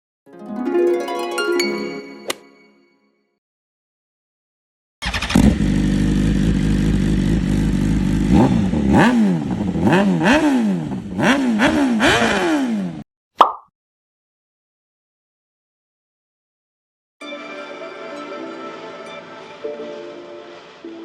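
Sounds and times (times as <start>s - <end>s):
motorcycle engine idling and revving: 5.0s - 13.0s.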